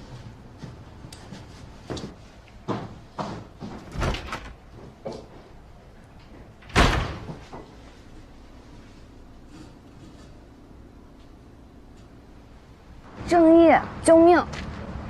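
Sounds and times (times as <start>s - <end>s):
knocks and rustles of movement: 0.0s - 12.2s
door shutting: 3.9s - 4.6s, 6.6s - 7.5s.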